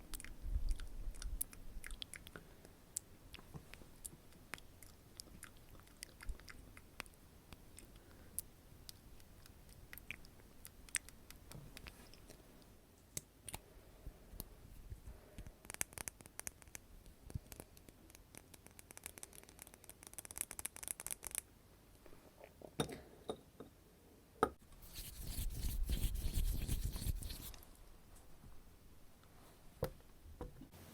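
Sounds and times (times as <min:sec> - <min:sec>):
loud rubbing or brushing: 0:24.8 - 0:27.6.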